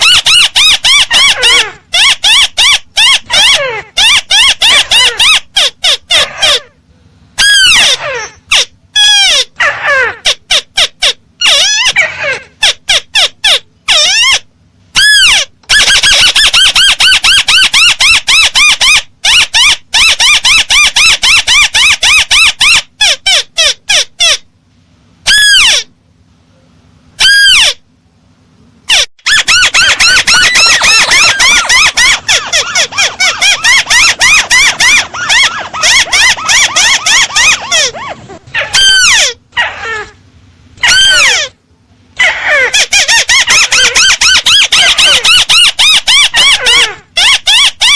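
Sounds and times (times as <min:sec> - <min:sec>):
crake bird squeaky call: 0:00.0 - 0:06.7, 0:07.4 - 0:24.5, 0:25.3 - 0:25.9, 0:27.2 - 0:27.8, 0:28.9 - 0:40.1, 0:40.8 - 0:41.6, 0:42.2 - 0:47.9
crake calling: 0:28.9 - 0:41.6, 0:42.2 - 0:47.9.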